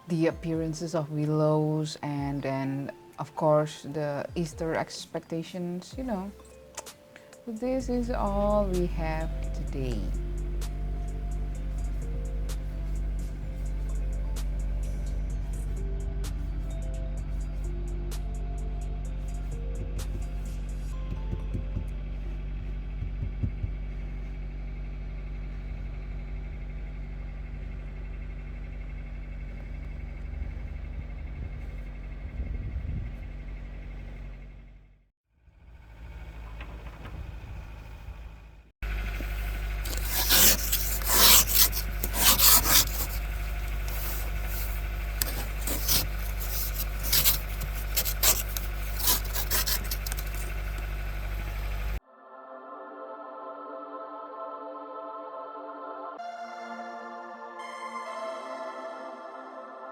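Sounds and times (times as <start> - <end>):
car engine drone: 5.9 - 52.0
low hum: 7.6 - 52.0
soft low thumps: 19.8 - 24.6
road noise: 22.0 - 52.0
rasping scrapes: 39.2 - 52.0.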